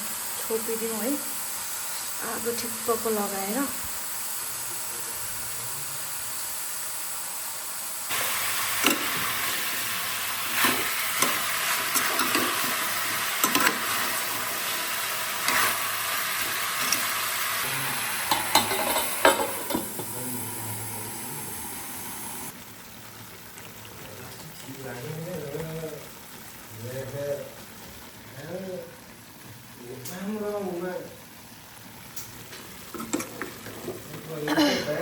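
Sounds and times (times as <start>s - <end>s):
meat sizzling in a pan: 0.0s - 35.0s
spoon scraping and knocking pan: 10.4s - 14.6s, 15.4s - 17.2s, 18.2s - 20.1s.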